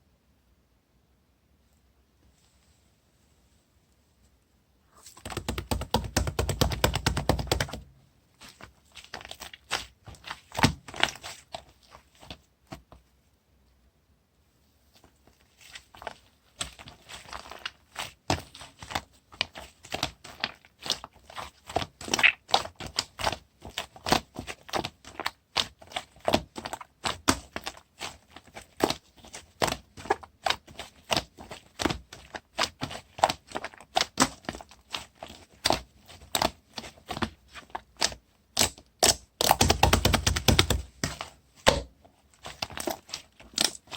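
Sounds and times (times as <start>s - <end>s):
slime squished by hand: 8.4s - 12.9s, 15.0s - 43.9s.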